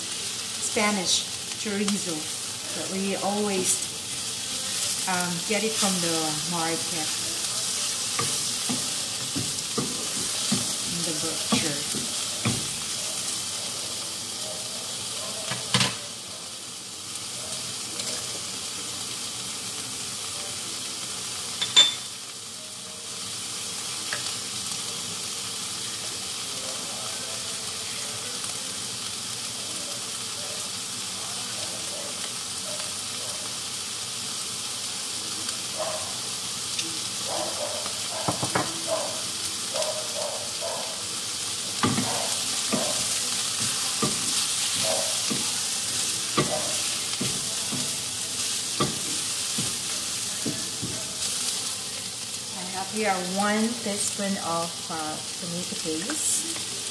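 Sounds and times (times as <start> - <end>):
food sizzling in a frying pan: 0.0 - 56.9
utensils knocking on a pan: 8.2 - 12.9, 38.2 - 38.9, 41.8 - 45.6, 46.3 - 48.0, 48.8 - 51.1
utensils clicking against a pan: 41.8 - 51.3.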